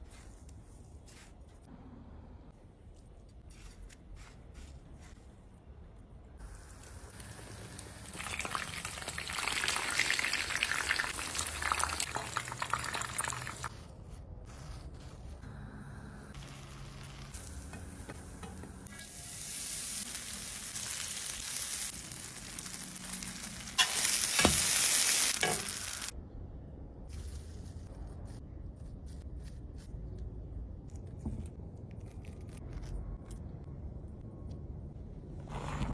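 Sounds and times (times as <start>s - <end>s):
chicken sizzling in hot oil: 6.6s - 13.7s, 19.0s - 26.1s.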